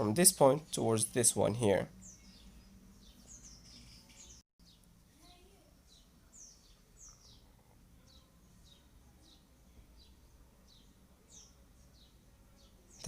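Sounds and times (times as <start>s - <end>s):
small bird chirping faintly: 1.8s - 13.0s.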